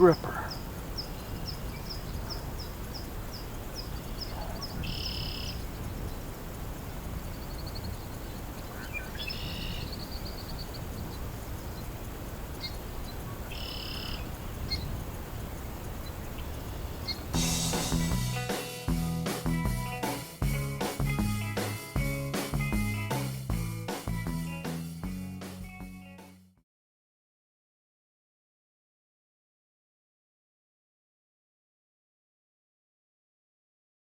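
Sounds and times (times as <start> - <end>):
low rumble of wind or water: 0.0 - 17.4.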